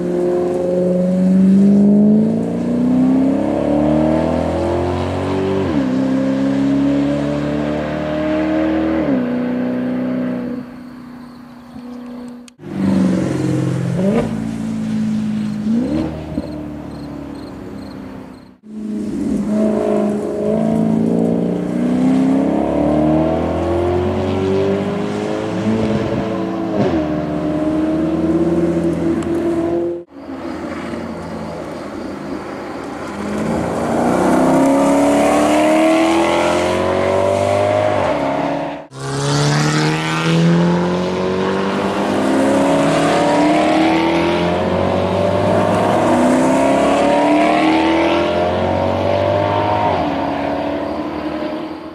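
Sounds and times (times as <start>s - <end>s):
car engine accelerating hard: 18.7s - 31.6s, 32.9s - 51.9s.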